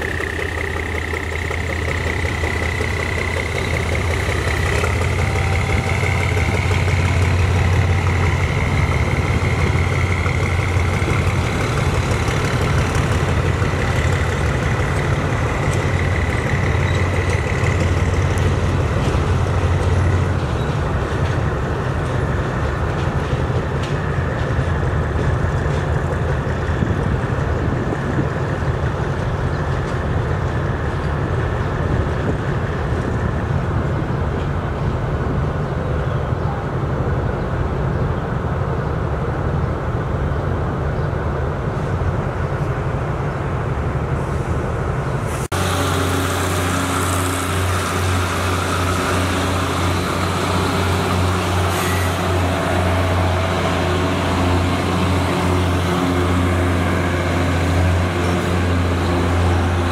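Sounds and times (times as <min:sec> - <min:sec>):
wheels on rails: 0:00.0 - 0:35.5
diesel locomotive rumbling: 0:00.0 - 0:59.9
passenger train passing: 0:00.0 - 0:59.9.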